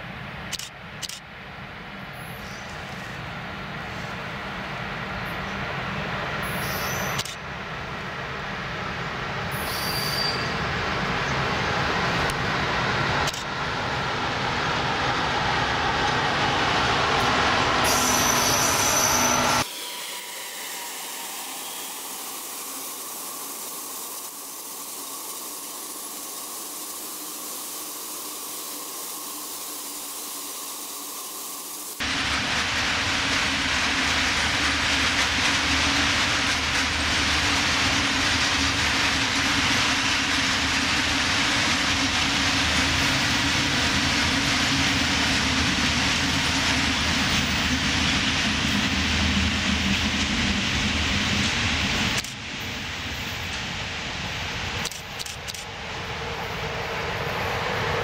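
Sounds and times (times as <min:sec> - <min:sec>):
freight train wheels rumbling: 0:00.0 - 0:58.0
high wheel squeal: 0:06.4 - 0:07.2, 0:09.6 - 0:10.6, 0:17.8 - 0:23.3.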